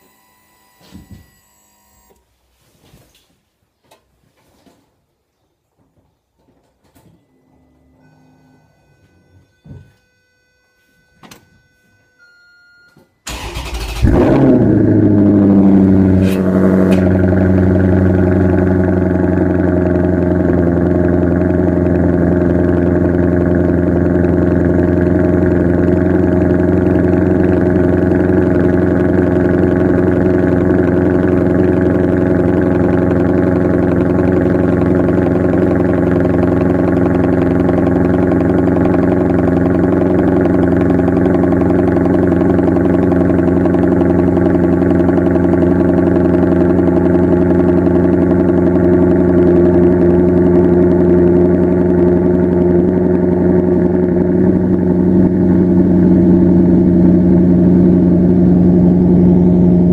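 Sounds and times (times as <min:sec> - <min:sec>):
starter motor cranking: 0:13.3 - 0:14.6
car engine revving and idling: 0:13.3 - 0:59.9.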